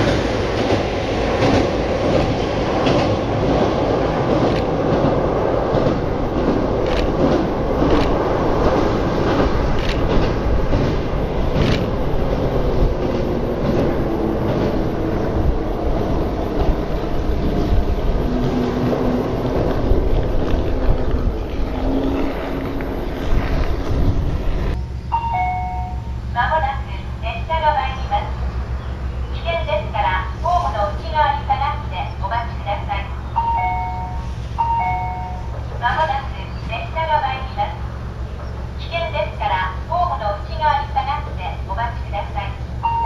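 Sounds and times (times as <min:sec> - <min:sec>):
wheels clacking over rail joints: 0:00.0 - 0:15.5, 0:16.5 - 0:24.8
distant train rumble on bridge: 0:00.0 - 0:43.0.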